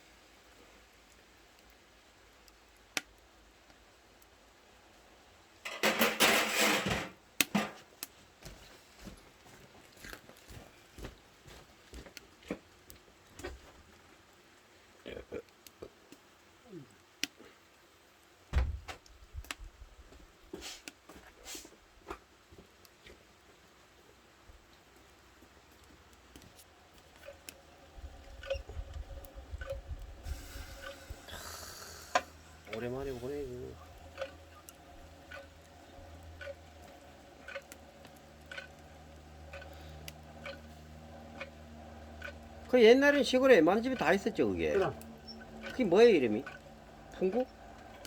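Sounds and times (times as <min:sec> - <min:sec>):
wood fire crackling: 0:00.0 - 0:48.0
objects knocking and clattering: 0:05.7 - 0:07.9
heavy thump: 0:18.5 - 0:18.9
low steady hum: 0:26.4 - 0:48.0.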